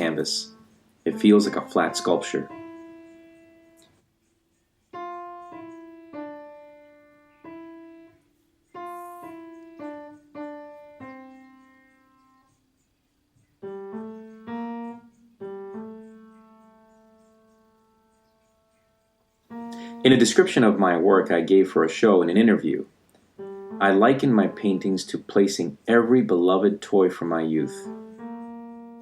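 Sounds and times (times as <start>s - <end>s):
slow piano melody: 0.0s - 21.8s, 23.4s - 26.4s, 27.1s - 29.0s.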